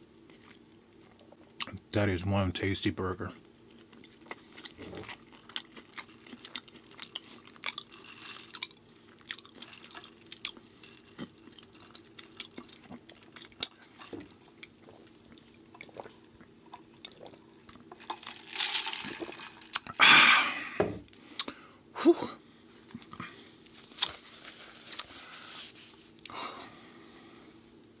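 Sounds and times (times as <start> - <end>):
wet chewing sounds: 3.7 - 18.3, 22.8 - 26.3.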